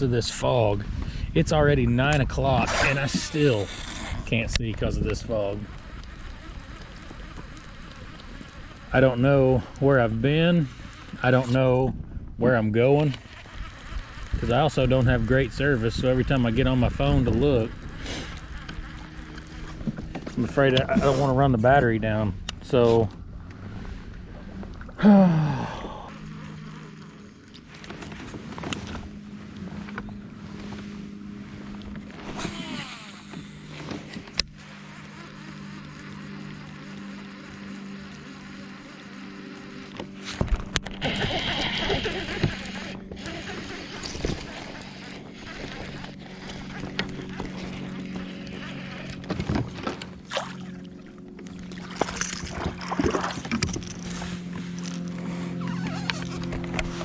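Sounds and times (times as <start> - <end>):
steady low hum: 0.0 - 57.0
short whirring sweep: 2.4 - 9.8, 28.1 - 50.7
water splashes: 41.0 - 54.0.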